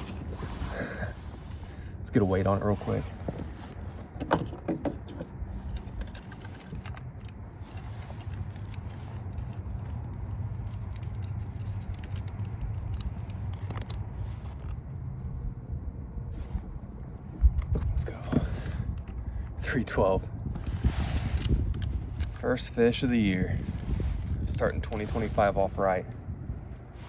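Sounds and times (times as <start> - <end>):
steady low rumble: 0.0 - 27.0
small clicks and rattles: 3.5 - 14.9, 20.6 - 25.3.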